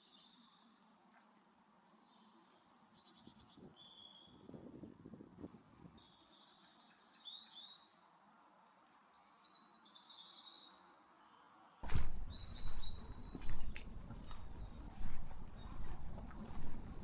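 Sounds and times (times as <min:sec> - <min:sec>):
small songbirds chirping: 0:00.0 - 0:01.0, 0:01.8 - 0:17.0
sharp knocks: 0:11.8 - 0:14.7
loud low rumbling: 0:11.8 - 0:17.0.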